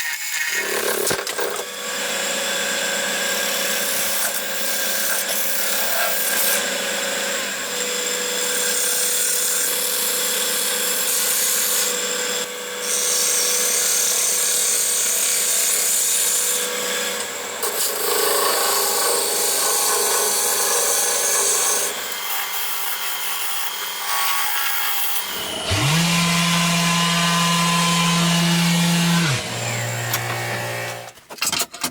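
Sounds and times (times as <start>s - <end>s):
power tool motor hum: 11.9s - 31.2s.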